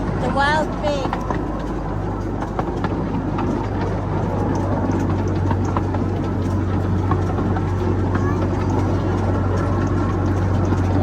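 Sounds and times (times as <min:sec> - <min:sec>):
small ride train rumbling: 0:00.0 - 0:11.0.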